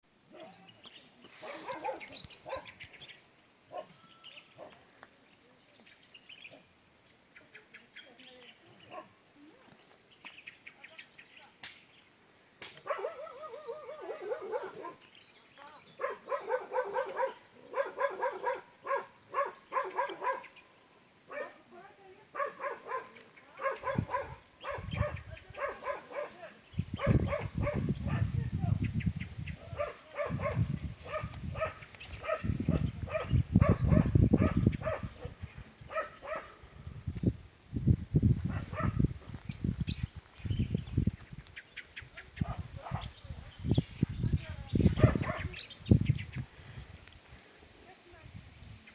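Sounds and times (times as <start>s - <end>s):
dog yapping barks: 1.4s - 2.7s, 3.7s - 3.9s, 12.8s - 15.0s, 16.0s - 20.5s, 21.3s - 21.6s, 22.4s - 26.4s, 27.0s - 28.3s, 29.7s - 36.5s, 38.5s - 39.0s, 45.0s - 45.5s.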